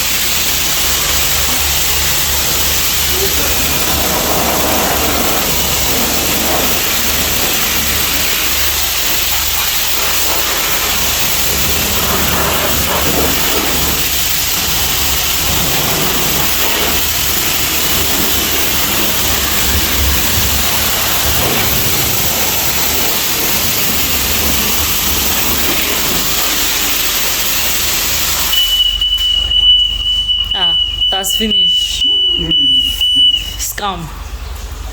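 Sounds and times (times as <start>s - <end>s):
high-pressure water spray hissing: 0.0s - 34.9s
steady high beep: 28.5s - 33.8s.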